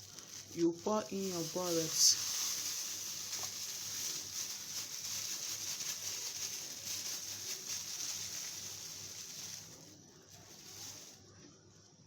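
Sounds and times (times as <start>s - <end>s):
hot liquid sizzling: 0.0s - 11.2s.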